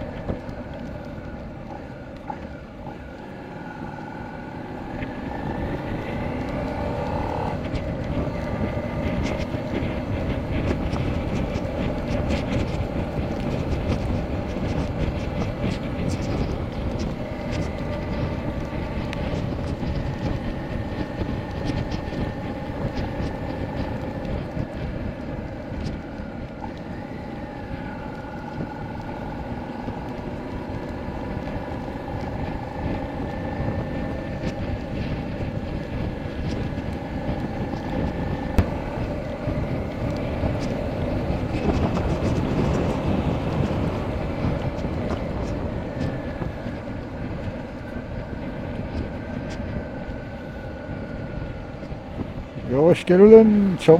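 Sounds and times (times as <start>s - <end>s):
motorcycle engine running: 0.0s - 53.9s
wind and road noise: 0.0s - 53.9s.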